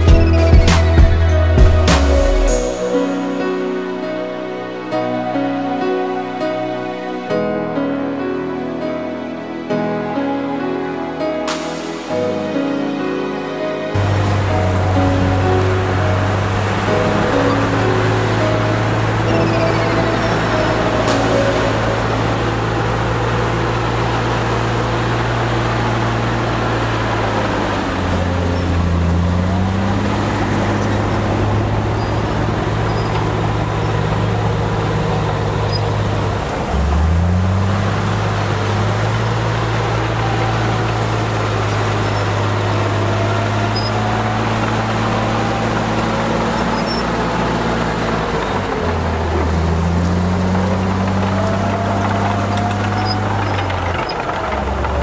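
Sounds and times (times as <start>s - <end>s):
heavy diesel engine under load: 13.9s - 55.0s.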